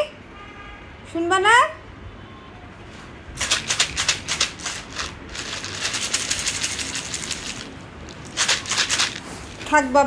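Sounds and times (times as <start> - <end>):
dry cat food rattling in packet: 3.4 - 10.0.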